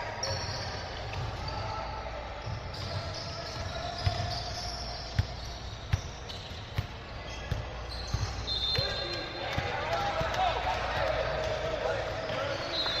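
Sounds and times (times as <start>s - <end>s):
basketball bouncing on gym floor: 2.4s - 8.9s.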